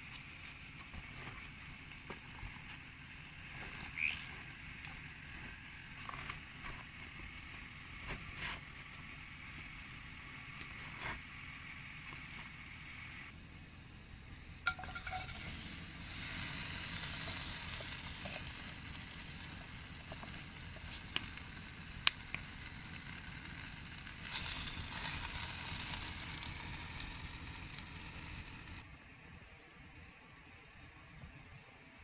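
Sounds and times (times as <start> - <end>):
food sizzling in a pan: 14.7 - 28.8.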